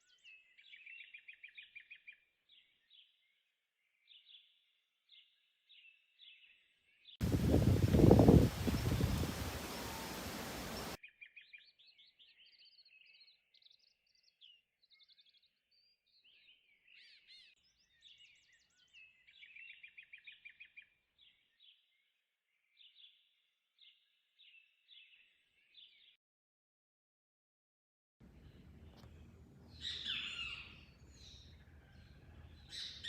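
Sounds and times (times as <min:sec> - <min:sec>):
songbirds singing and trilling: 0:00.0 - 0:26.2, 0:28.2 - 0:33.0
loud hiss: 0:07.2 - 0:11.0.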